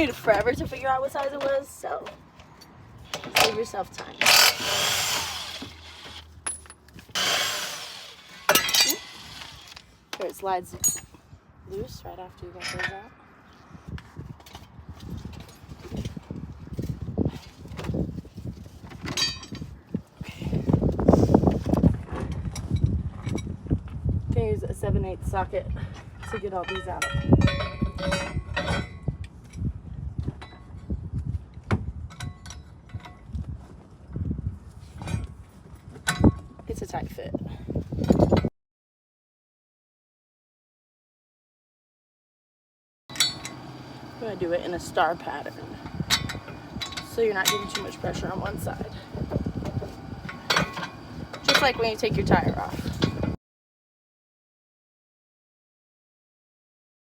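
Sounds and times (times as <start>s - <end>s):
hand tools clicking on metal: 1.2s - 11.2s, 45.9s - 48.6s
impact wrench running: 4.2s - 6.3s, 7.1s - 9.8s.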